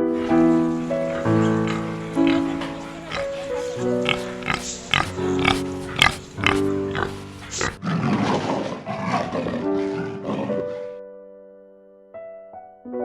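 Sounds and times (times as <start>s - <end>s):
piano music: 0.0s - 7.8s
rough animal sound: 0.0s - 9.2s
animal clicks: 0.2s - 7.8s.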